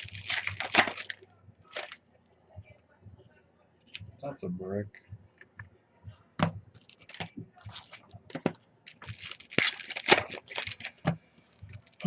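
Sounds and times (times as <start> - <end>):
foil wrappers crinkling and tearing: 0.0 - 2.0, 6.8 - 8.1, 8.9 - 11.0.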